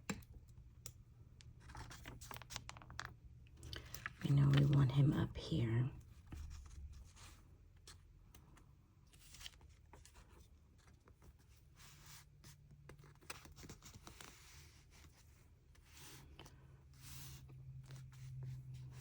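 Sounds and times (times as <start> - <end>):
paper rustling: 1.6 - 5.0, 9.1 - 12.2.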